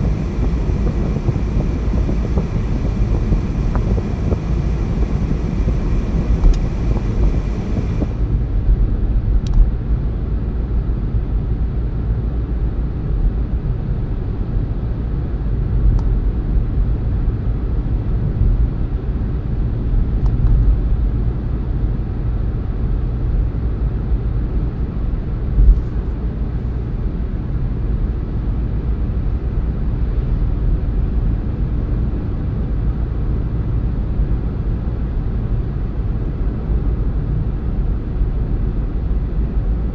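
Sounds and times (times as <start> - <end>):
car tyres and engine rumble: 0.0 - 9.8, 25.5 - 29.4.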